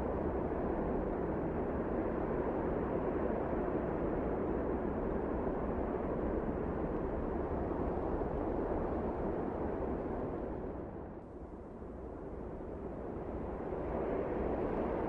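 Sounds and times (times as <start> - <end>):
rushing wind of snowstorm: 12.6 - 15.0.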